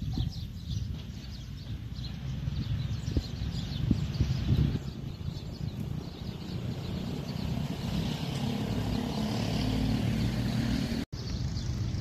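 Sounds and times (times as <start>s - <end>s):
diesel engine hum: 4.7s - 12.0s.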